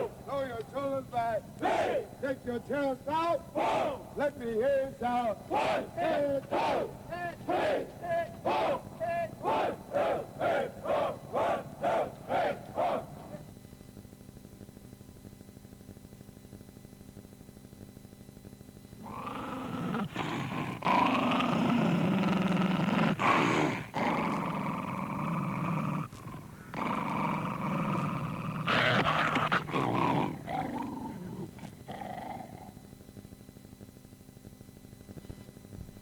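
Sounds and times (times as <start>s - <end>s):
animal growling: 19.0s - 32.8s.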